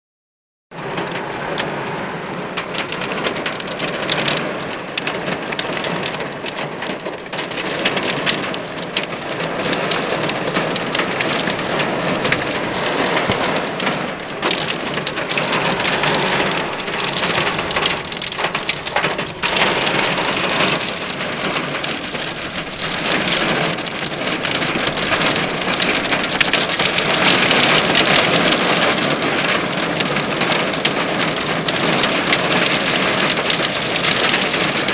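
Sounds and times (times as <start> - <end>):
hail pelting a car: 0.8 - 34.9.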